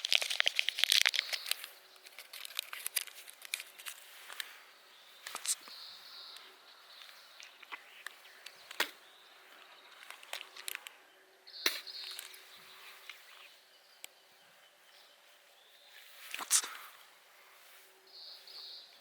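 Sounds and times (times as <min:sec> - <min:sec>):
objects clicking and knocking: 0:00.0 - 0:04.5, 0:05.3 - 0:05.7, 0:09.9 - 0:11.0
outdoor background noise: 0:00.0 - 0:19.0.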